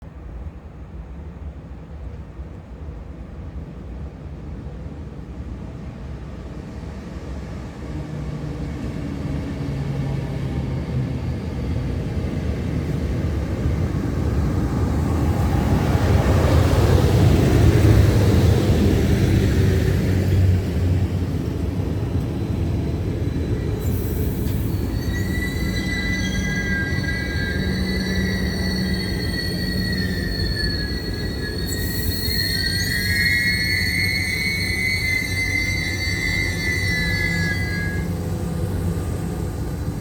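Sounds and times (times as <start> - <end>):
train passing rumble: 0.0 - 40.0
wheel squeal: 22.1 - 40.0.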